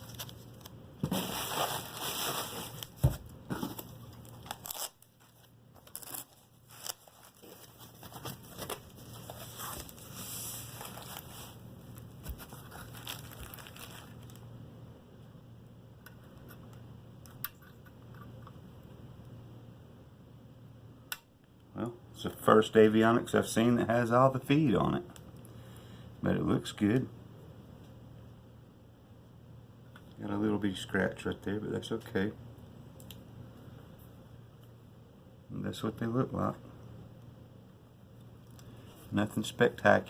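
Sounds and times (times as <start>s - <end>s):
packaging crinkling and rustling: 0.0s - 14.4s.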